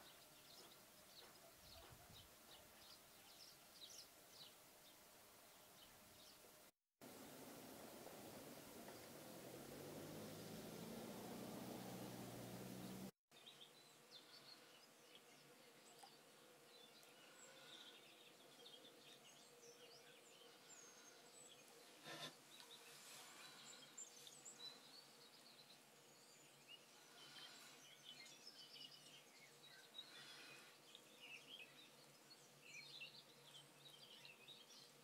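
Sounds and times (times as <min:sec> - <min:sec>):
distant bird chirps: 0:07.2 - 0:13.1.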